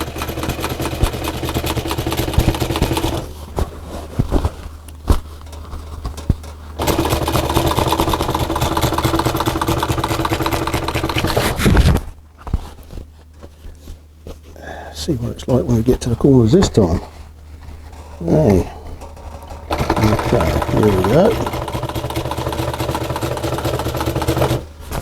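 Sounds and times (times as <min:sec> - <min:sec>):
sewing machine stitching: 0:00.0 - 0:03.4, 0:06.8 - 0:12.0, 0:18.3 - 0:24.7.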